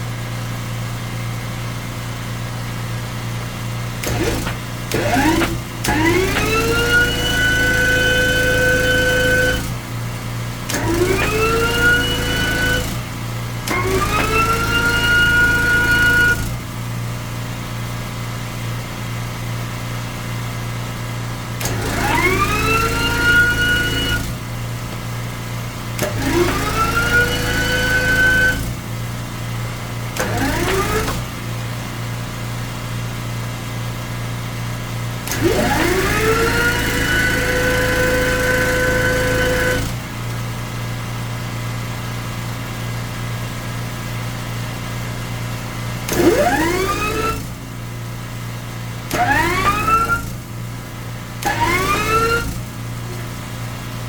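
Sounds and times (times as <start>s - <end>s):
power tool motor whine: 4.0s - 9.8s, 10.7s - 16.7s, 21.6s - 25.0s, 25.9s - 28.8s, 30.1s - 31.5s, 35.2s - 40.3s, 46.0s - 47.6s, 49.1s - 50.5s, 51.4s - 53.4s.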